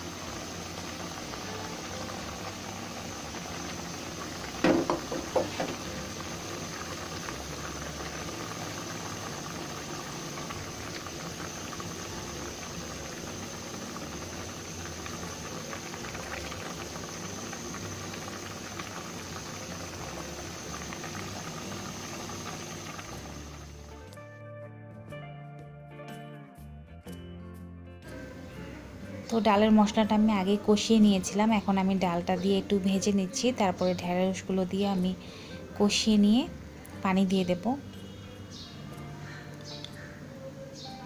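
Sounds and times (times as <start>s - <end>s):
food bubbling and hissing in pan: 0.0s - 24.1s.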